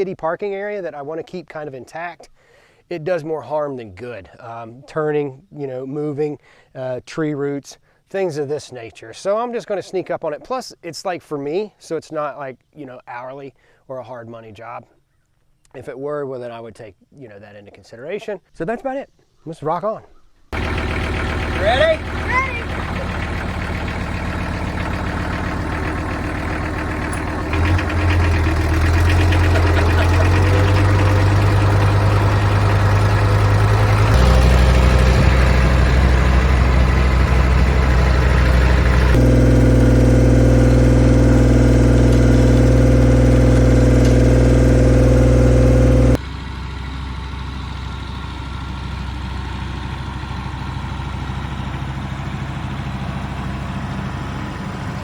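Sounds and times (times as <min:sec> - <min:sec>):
tractor diesel engine running: 0:20.6 - 0:55.0.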